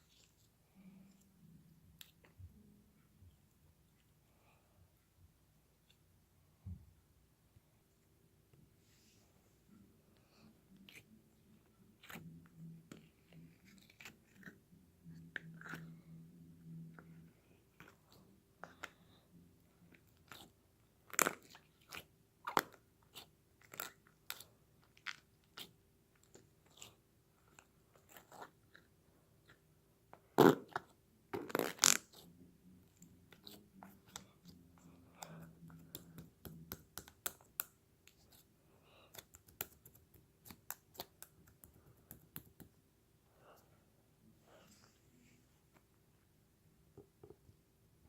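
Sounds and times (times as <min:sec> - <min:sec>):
spoon squishing sticky slime: 0:10.7 - 0:19.2, 0:19.8 - 0:29.7, 0:30.6 - 0:42.7.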